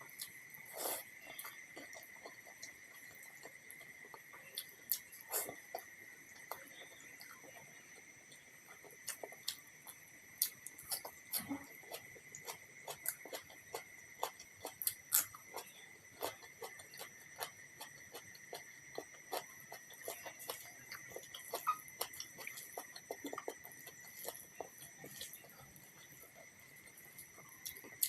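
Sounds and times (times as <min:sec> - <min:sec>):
wet mouth chewing sounds: 0:09.0 - 0:25.4.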